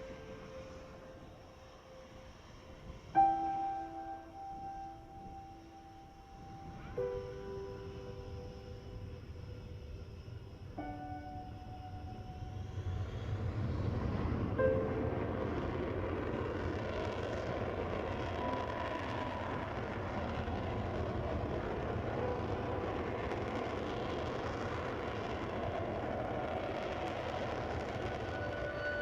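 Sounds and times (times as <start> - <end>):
jet engines roaring: 6.0 - 29.0.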